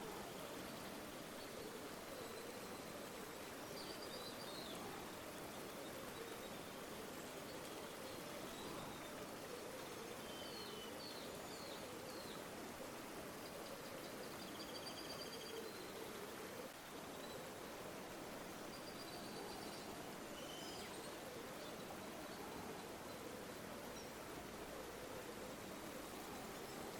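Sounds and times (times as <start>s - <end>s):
river water flowing: 15.2s - 26.9s.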